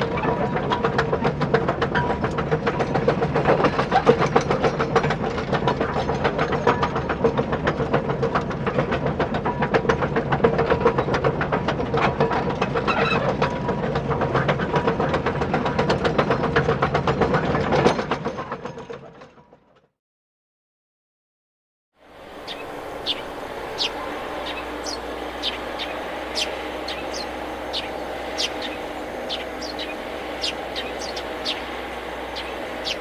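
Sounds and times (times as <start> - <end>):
small electric gear motors running: 22.1 - 33.0.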